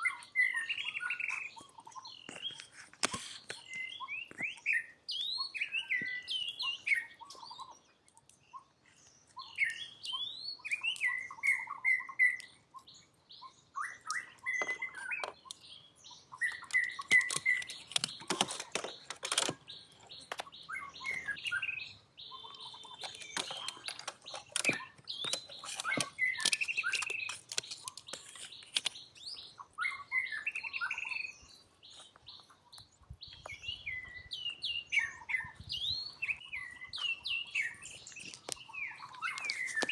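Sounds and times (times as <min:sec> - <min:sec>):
animal chirps and squeaks: 0:08.4 - 0:39.9
sharp clicks: 0:16.5 - 0:21.5, 0:22.8 - 0:29.1.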